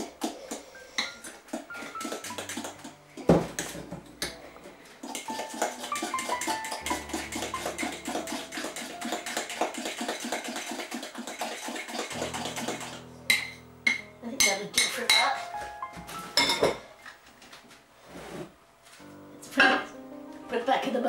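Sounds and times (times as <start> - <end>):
utensil beating mixture in bowl: 0.0 - 3.0, 5.0 - 13.6
background music: 0.0 - 10.7, 11.6 - 17.2, 19.0 - 21.0.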